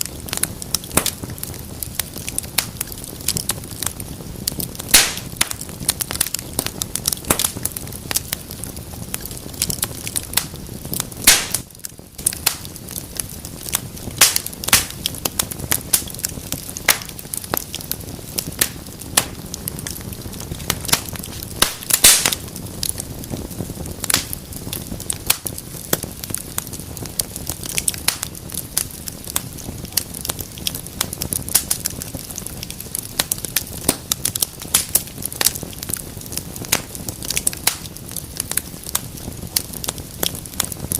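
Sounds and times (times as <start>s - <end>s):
fire crackling and popping: 0.0s - 40.9s
low rumble of flames: 0.0s - 40.9s.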